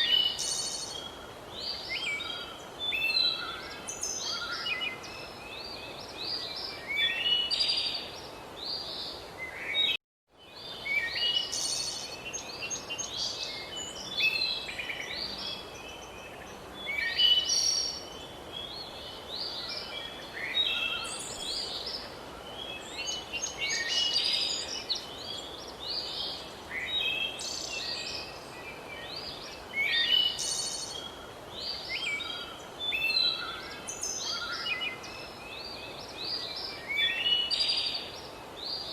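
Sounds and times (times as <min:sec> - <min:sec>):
songbirds singing and chirping: 0:00.0 - 0:38.9
steady background hiss: 0:00.0 - 0:38.9.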